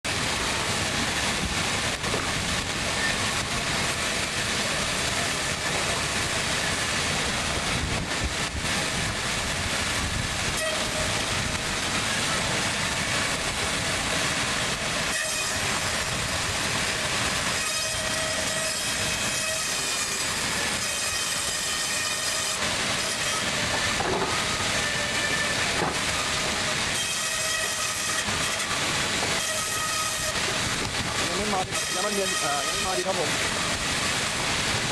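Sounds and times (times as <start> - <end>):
bandsaw running: 15.0 - 33.8.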